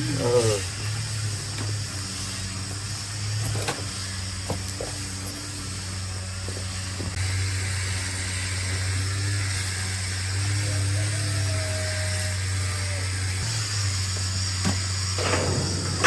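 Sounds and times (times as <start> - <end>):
small motor humming: 0.0 - 16.0
steady hiss: 0.0 - 16.0.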